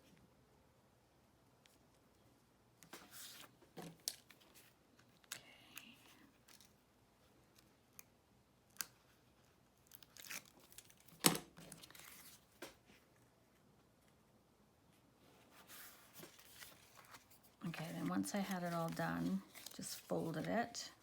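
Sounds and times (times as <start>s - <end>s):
paper rustling and scraping: 2.9s - 5.1s, 9.9s - 12.9s, 15.5s - 20.6s.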